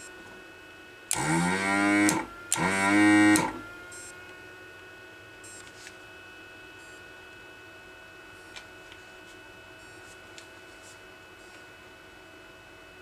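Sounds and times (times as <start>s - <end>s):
vacuum pump running: 1.1s - 4.6s
switch click: 2.0s - 3.7s.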